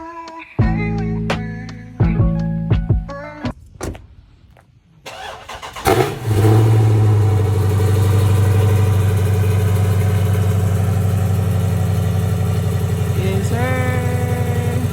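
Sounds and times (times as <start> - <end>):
car engine idling: 5.1 - 14.9
car starter cranking: 5.1 - 14.9.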